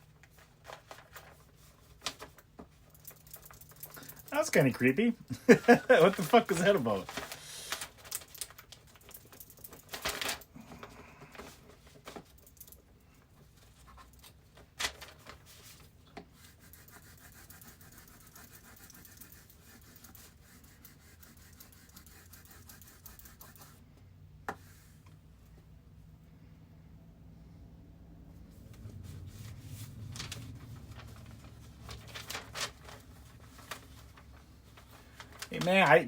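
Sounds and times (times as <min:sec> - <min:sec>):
faint scratching and rubbing: 0:15.5 - 0:23.8, 0:28.5 - 0:36.0
low hum: 0:27.3 - 0:32.4.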